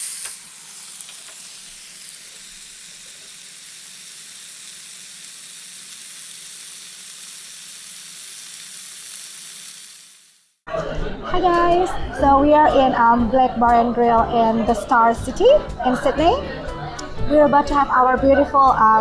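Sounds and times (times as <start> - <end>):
steak sizzling: 0.0 - 10.6.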